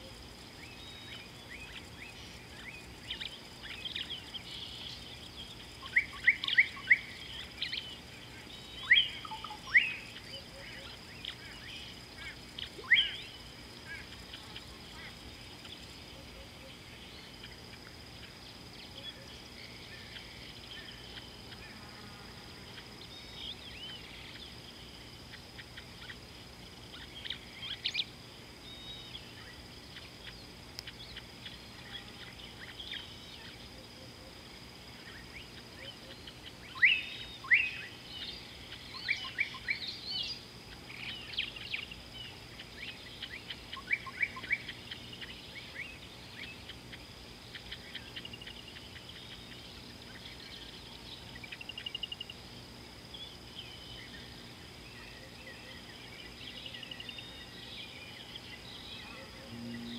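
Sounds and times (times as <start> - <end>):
small birds chirping: 0.0 - 21.9, 22.7 - 33.7, 35.0 - 52.4
steady high-pitched tone: 59.3 - 59.9.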